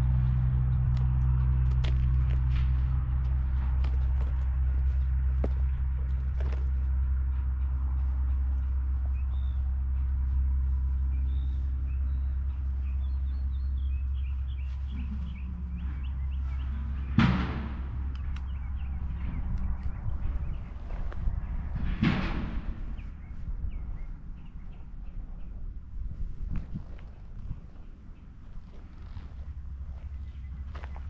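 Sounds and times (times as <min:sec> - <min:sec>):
steady low rumble: 0:00.0 - 0:31.0
small birds chirping: 0:04.0 - 0:17.2, 0:17.8 - 0:21.7, 0:22.8 - 0:31.0.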